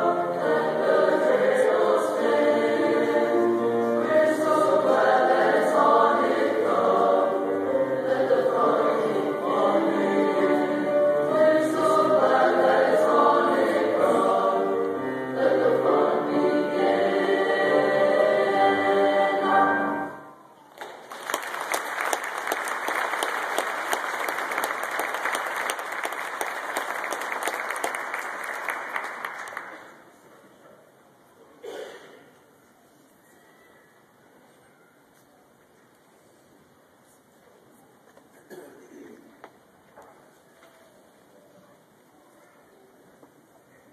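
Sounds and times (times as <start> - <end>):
choir singing: 0.0 - 20.4
audience applause: 20.7 - 30.0.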